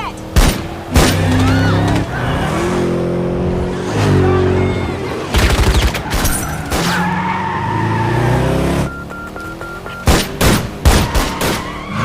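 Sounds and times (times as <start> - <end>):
car engine running: 0.1 - 11.1
tires skidding: 0.7 - 9.9, 10.8 - 12.0
short electronic beeps: 8.7 - 10.2
sharp bangs: 9.9 - 11.8.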